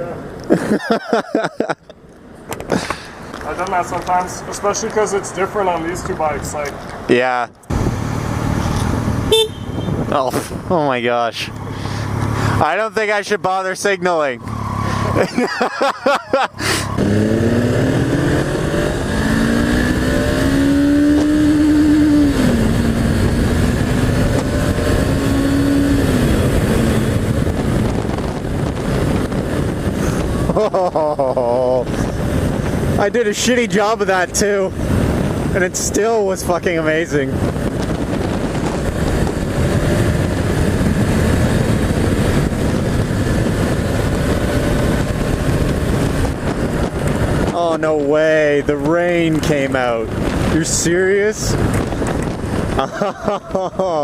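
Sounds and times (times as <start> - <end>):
wind rushing over microphone: 2.6 - 54.0
motorcycle engine running: 7.7 - 10.8, 37.3 - 50.6
motorcycle engine accelerating: 7.7 - 12.8, 14.3 - 33.1, 37.2 - 54.0.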